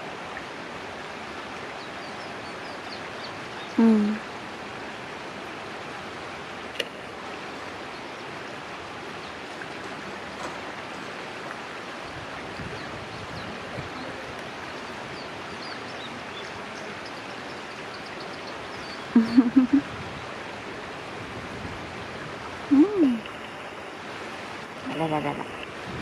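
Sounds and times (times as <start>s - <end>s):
stream rushing: 0.0s - 26.0s.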